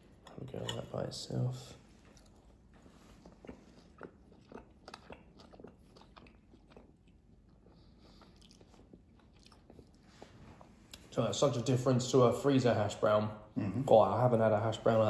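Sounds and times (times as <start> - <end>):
faint crunchy chewing: 1.7 - 11.2.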